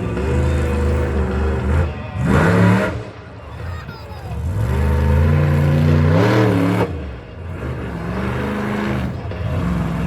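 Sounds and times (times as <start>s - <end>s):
monster truck engine revving: 0.0s - 3.1s, 4.4s - 10.0s.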